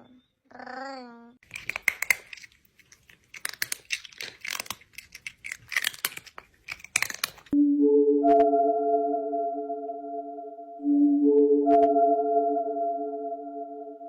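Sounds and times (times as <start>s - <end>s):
crackling and rustling: 1.4s - 7.6s
steady musical tone: 7.6s - 14.0s.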